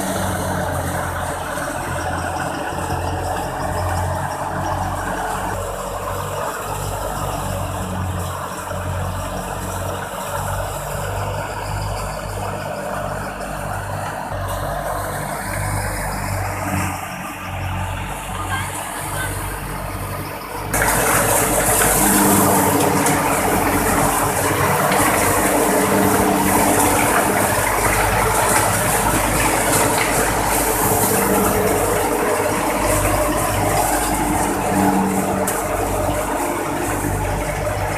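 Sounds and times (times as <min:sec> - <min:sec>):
tractor engine low throb: 0:00.0 - 0:37.9
thresher clatter and rush: 0:20.6 - 0:37.9.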